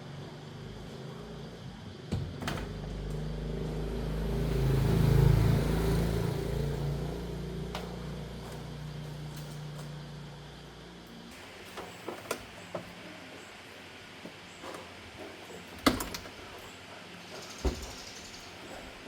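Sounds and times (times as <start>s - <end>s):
vehicle engine hum: 0.0s - 11.3s.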